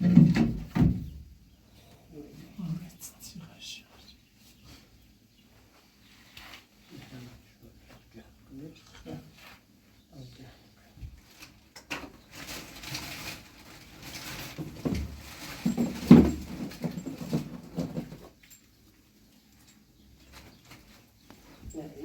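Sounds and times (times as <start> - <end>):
objects knocking and scraping: 0.0 - 1.2, 11.0 - 18.6.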